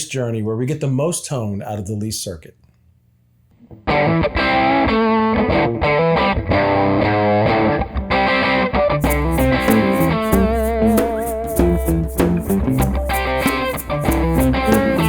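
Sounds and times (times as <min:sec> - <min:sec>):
distorted electric guitar riff: 0:09.0 - 0:15.0
drums: 0:09.0 - 0:15.0.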